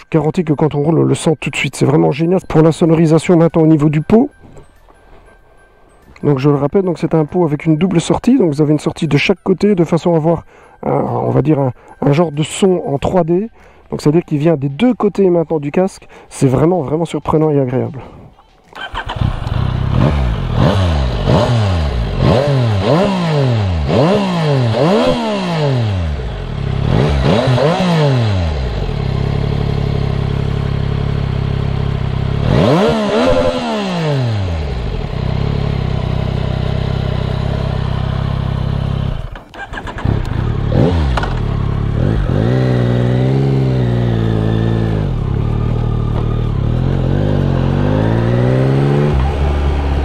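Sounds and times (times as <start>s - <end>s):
motorcycle engine revving: 18.8s - 50.0s.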